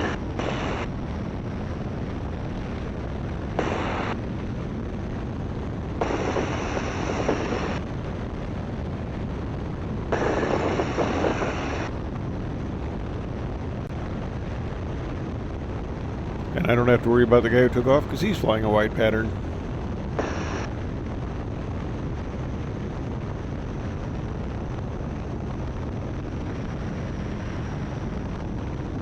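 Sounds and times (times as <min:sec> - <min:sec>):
biplane engine and propeller droning: 0:05.9 - 0:08.4, 0:10.1 - 0:12.0, 0:16.4 - 0:20.7.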